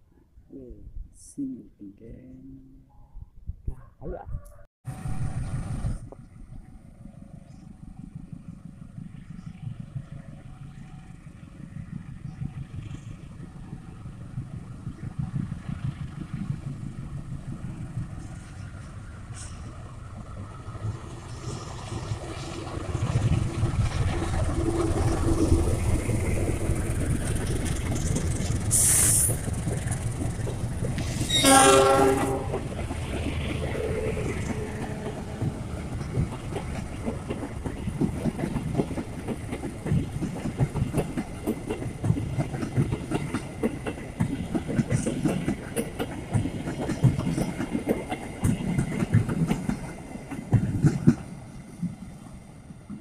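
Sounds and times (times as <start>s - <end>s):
locomotive engine rumble: 4.9s - 46.7s
train wheels on rail: 4.9s - 53.0s.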